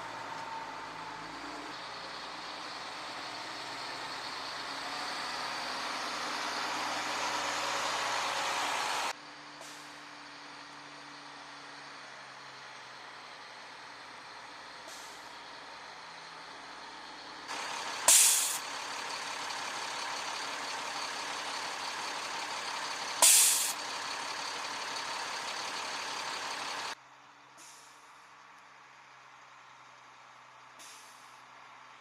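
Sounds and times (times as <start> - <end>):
vehicle engine noise: 0.0 - 32.0
truck air brakes hissing: 1.8 - 10.2, 14.7 - 15.7, 17.5 - 27.0, 27.6 - 28.2, 30.8 - 31.5.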